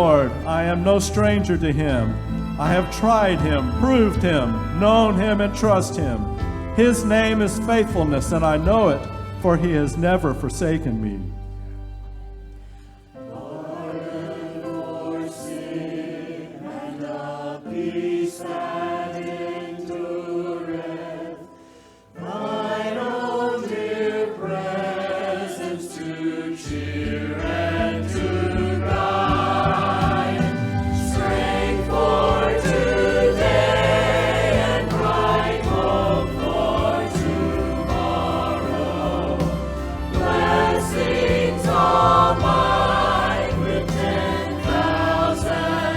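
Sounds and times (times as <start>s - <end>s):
choir singing a hymn: 0.0s - 11.6s, 13.0s - 45.9s
deep low voices: 0.0s - 11.6s.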